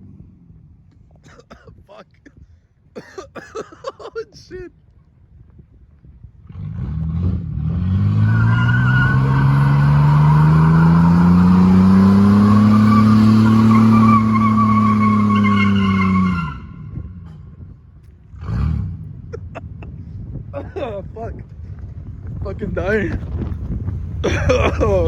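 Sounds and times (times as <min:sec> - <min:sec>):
pickup engine revving hard: 0:06.4 - 0:17.0, 0:18.3 - 0:19.2
tyres squealing: 0:08.2 - 0:16.8.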